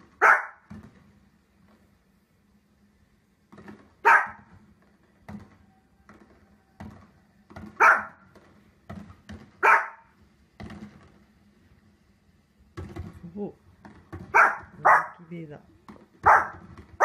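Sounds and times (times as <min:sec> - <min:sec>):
small dog barking: 0:00.2 - 0:00.6, 0:04.0 - 0:04.5, 0:07.8 - 0:08.2, 0:09.6 - 0:10.1, 0:14.3 - 0:15.3, 0:16.2 - 0:17.0
faint pops and thumps: 0:03.4 - 0:09.6, 0:10.4 - 0:11.5, 0:12.7 - 0:14.8.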